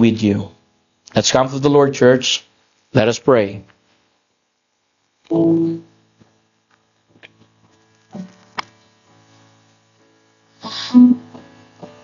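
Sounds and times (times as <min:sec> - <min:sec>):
faint mains hum: 0:00.0 - 0:12.0
soft keyboard chords: 0:07.2 - 0:12.0.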